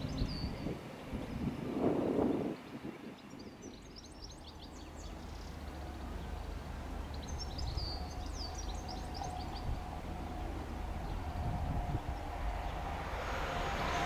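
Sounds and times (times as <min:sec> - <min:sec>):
small birds chirping: 0:00.0 - 0:01.7, 0:02.3 - 0:11.4
low steady rumble: 0:03.8 - 0:14.0.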